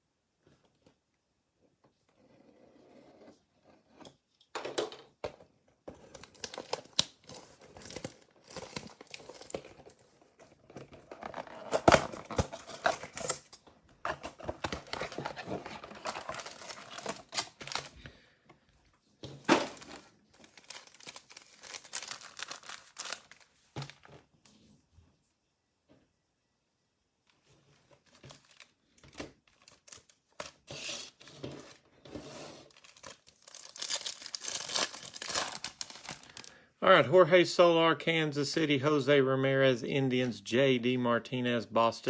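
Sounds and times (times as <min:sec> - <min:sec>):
foil wrappers crinkling: 0:06.1 - 0:10.0, 0:11.2 - 0:18.3, 0:19.5 - 0:24.1, 0:28.0 - 0:31.3, 0:32.6 - 0:36.6.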